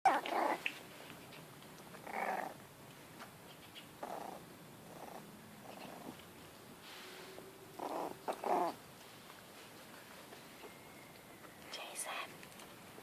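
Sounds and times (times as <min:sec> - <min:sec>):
puppies grunting: 0:02.0 - 0:02.6, 0:04.0 - 0:06.2, 0:07.6 - 0:08.8.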